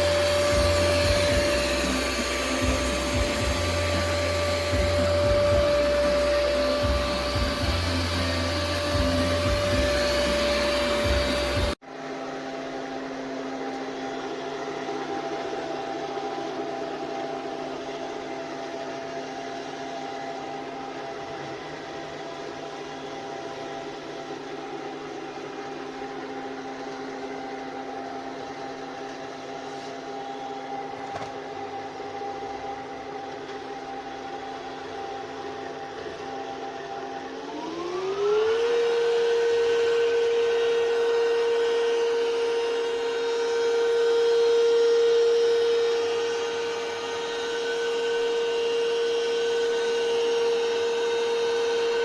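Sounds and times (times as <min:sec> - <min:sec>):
robot vacuum motor humming: 0:00.0 - 0:52.0.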